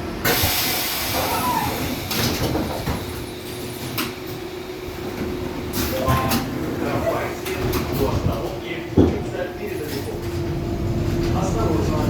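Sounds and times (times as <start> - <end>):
air hiss of tram doors: 0.2 - 4.2.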